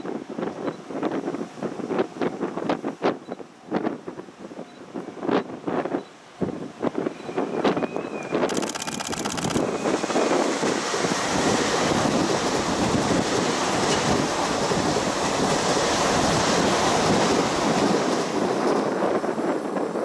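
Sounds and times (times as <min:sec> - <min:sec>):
train passing at speed: 0:09.7 - 0:20.0.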